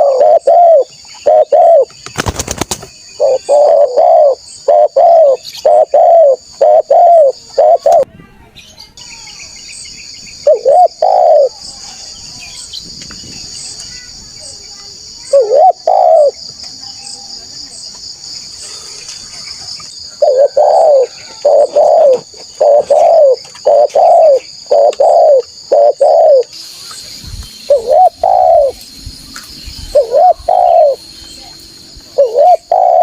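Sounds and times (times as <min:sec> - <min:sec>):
spotted dove cooing: 0:00.0 - 0:01.9, 0:03.2 - 0:08.0, 0:10.4 - 0:11.5, 0:15.3 - 0:16.4, 0:20.2 - 0:26.5, 0:27.7 - 0:28.8, 0:29.9 - 0:31.0, 0:32.1 - 0:33.0
high-pitched insect drone: 0:20.0 - 0:33.0.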